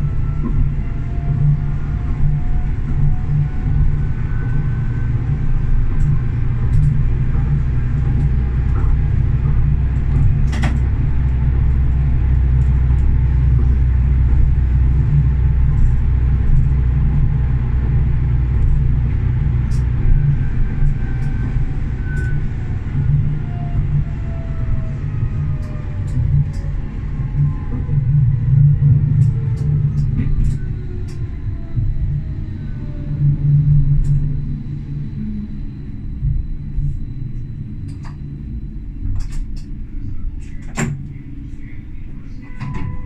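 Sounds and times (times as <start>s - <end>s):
faint whine: 0.0s - 43.0s
tram rumbling on rails: 0.0s - 43.0s.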